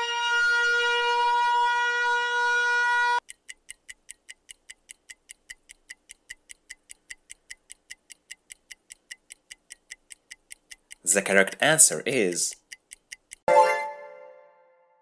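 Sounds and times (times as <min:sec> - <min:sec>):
air raid siren: 0:00.0 - 0:03.2
countdown timer ticking: 0:03.2 - 0:14.5.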